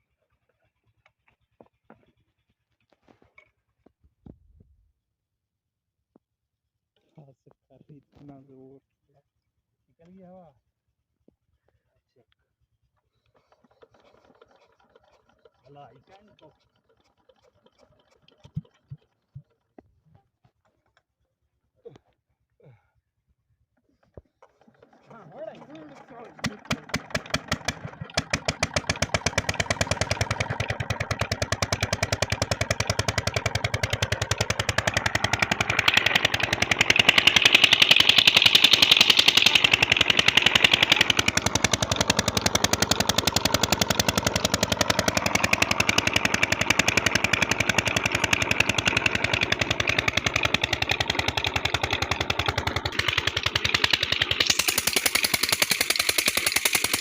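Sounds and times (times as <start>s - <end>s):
diesel engine chugging: 24.8s - 57.0s.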